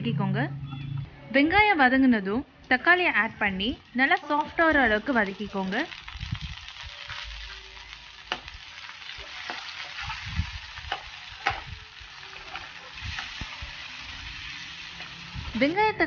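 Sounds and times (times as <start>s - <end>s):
onions sizzling in oil: 3.0s - 16.0s
metal spatula scraping pan: 8.3s - 15.7s.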